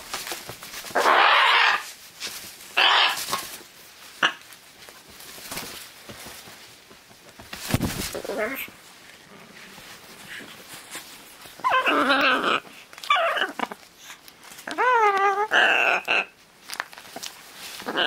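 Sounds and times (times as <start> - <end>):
harsh animal calls: 0.9 - 1.9, 2.8 - 3.4, 14.7 - 16.4.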